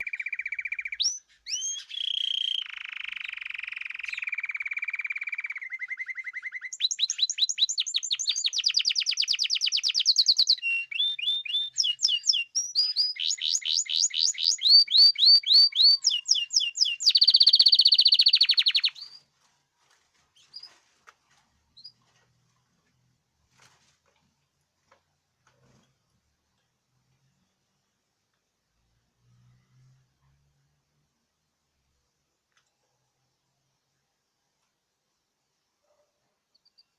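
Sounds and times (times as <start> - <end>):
songbird singing trills: 0.0 - 19.2.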